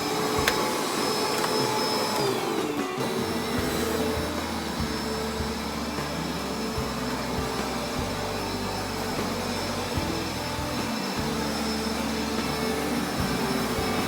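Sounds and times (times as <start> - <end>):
carpet-washing vacuum running: 0.0 - 14.0.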